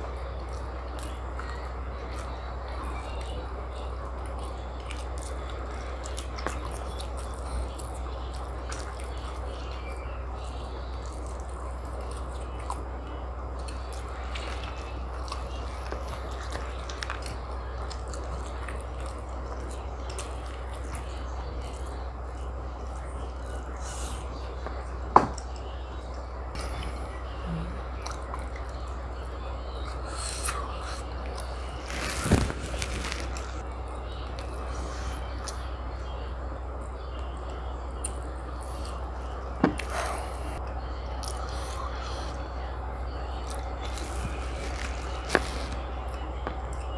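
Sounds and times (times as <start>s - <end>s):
background hiss and hum: 0.0s - 46.9s
close-up eating sounds: 0.0s - 46.9s
person chewing food: 29.7s - 33.6s, 43.4s - 46.9s.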